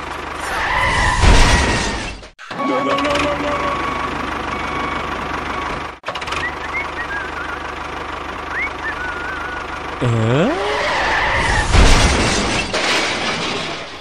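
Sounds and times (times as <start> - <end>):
tractor engine running: 0.0 - 0.4, 4.0 - 12.6.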